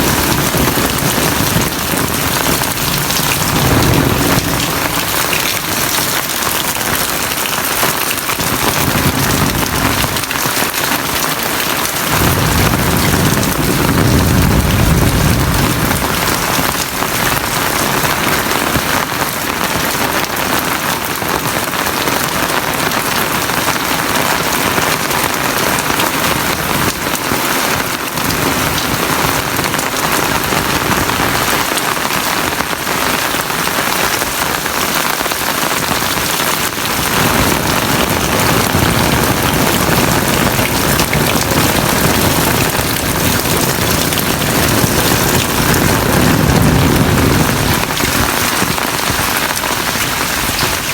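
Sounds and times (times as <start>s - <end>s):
heavy rain pouring: 0.0s - 50.9s
deep low rumble: 0.2s - 6.0s, 12.2s - 16.8s.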